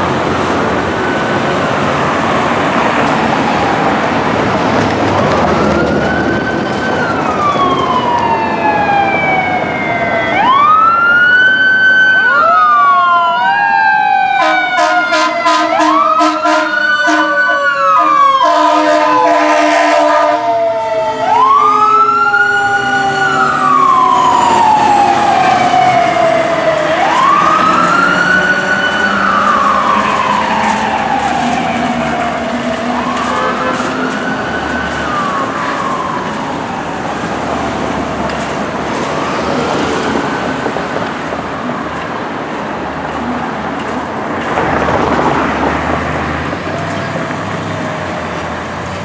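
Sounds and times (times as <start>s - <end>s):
fire engine siren wailing: 0.0s - 49.0s
horn blasts: 14.4s - 20.6s, 32.9s - 34.2s.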